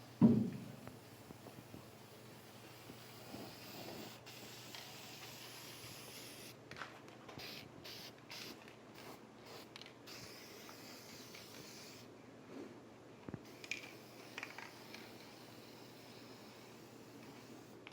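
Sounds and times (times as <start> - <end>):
spray paint hissing: 1.8 - 6.6, 7.4 - 12.1, 13.4 - 17.9.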